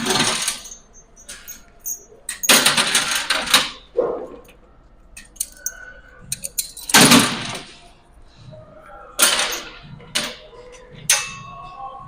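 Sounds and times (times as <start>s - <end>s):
metal gym equipment clanking: 0.0s - 4.4s, 9.2s - 11.7s.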